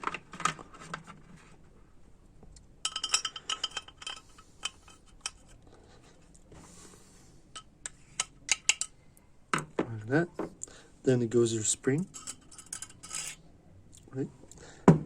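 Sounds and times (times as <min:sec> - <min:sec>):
metal valve parts clinking: 0:02.8 - 0:05.6, 0:07.6 - 0:09.0, 0:12.0 - 0:13.4
metal parts clicking: 0:07.6 - 0:09.0, 0:12.0 - 0:13.4.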